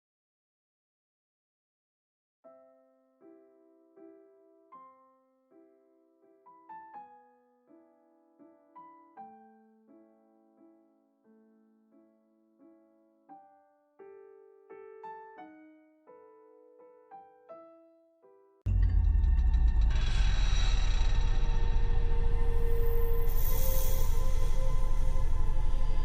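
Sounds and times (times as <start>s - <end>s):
slow solo piano: 2.5s - 18.6s.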